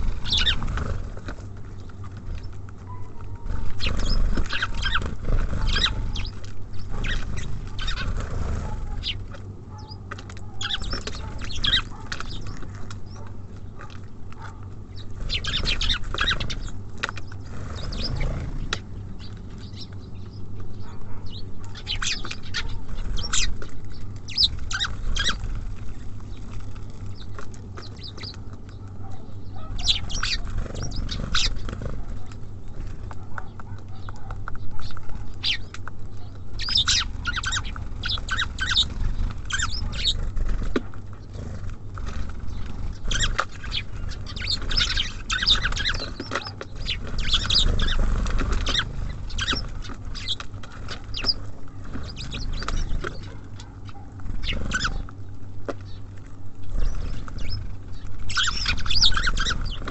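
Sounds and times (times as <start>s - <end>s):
songbirds chirping: 0.0s - 59.9s
steady low rumble: 0.0s - 59.9s.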